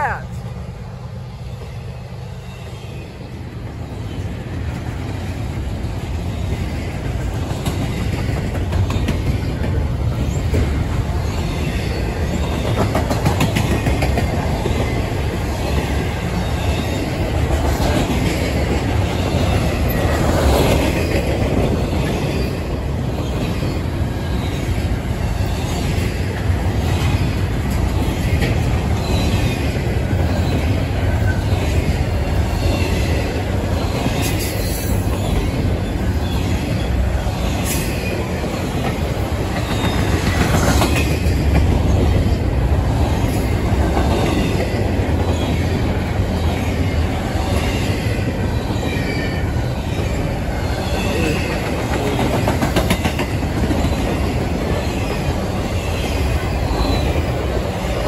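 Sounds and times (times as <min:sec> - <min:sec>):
freight train wheels rumbling: 0:00.0 - 0:58.0
wheels clicking over rail joints: 0:50.9 - 0:58.0.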